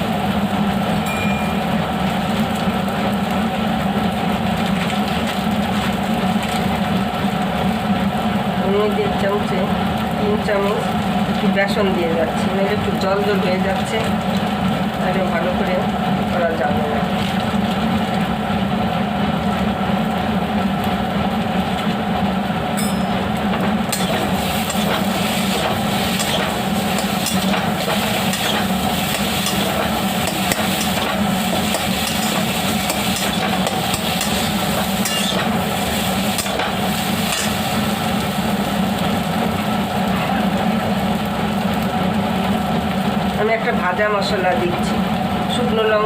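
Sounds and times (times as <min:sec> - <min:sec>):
low hum: 0:22.6 - 0:40.4
spatula scraping metal pan: 0:24.0 - 0:35.5.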